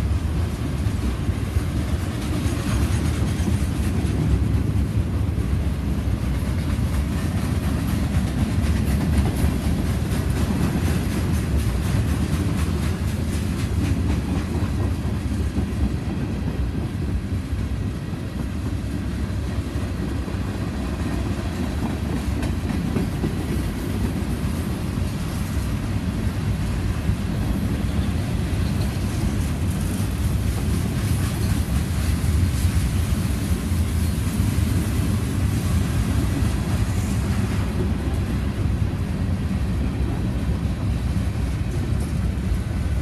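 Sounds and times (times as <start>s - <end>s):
steel wheels rumbling on rails: 0.0s - 43.0s
wheels clacking over rail joints: 5.9s - 38.3s.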